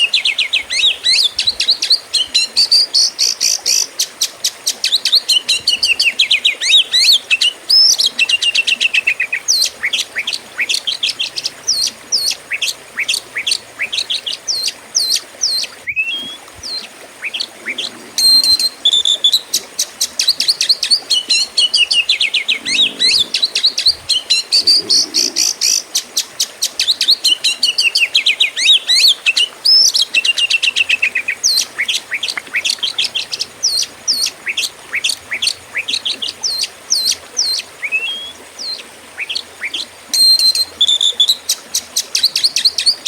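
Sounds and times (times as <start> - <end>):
bird singing whistles and chirps: 13.0 - 19.4, 37.8 - 41.4.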